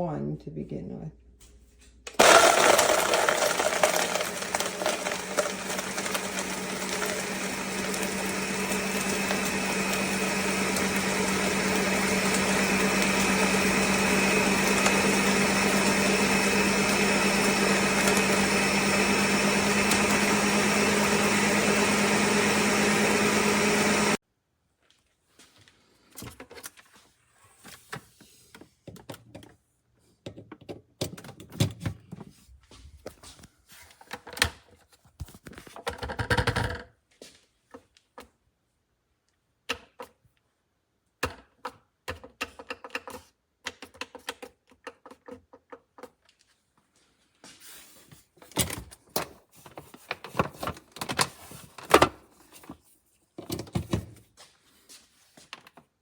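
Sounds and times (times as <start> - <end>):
plastic blender parts clicking: 41.2 - 46.2.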